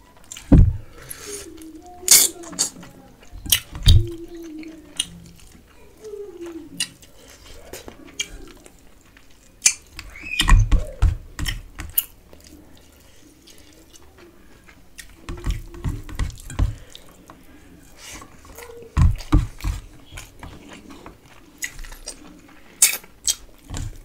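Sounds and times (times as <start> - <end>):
wet chewing and lip smacks: 2.6 - 10.2, 20.1 - 23.7.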